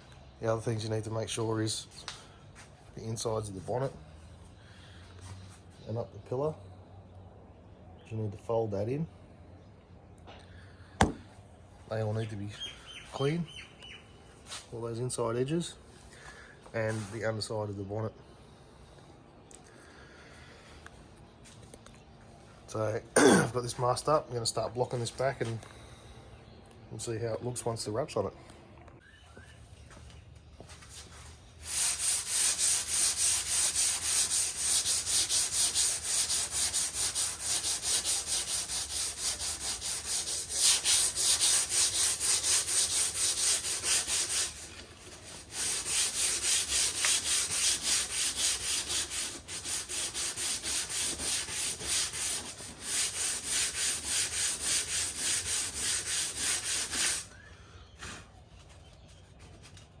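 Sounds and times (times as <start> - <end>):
sandpaper rubbing on panel: 31.0 - 57.3.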